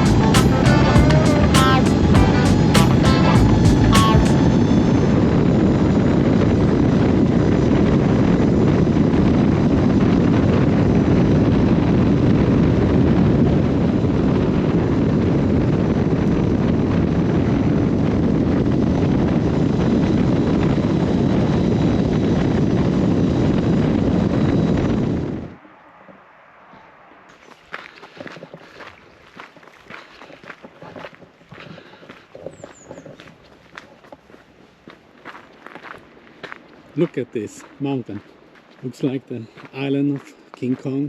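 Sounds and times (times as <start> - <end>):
faint high whine: 0.0 - 16.4
wind buffeting microphone: 0.0 - 41.0.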